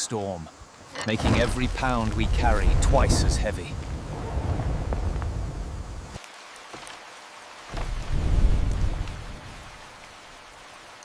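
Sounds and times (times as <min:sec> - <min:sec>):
rain hissing: 0:00.0 - 0:11.0.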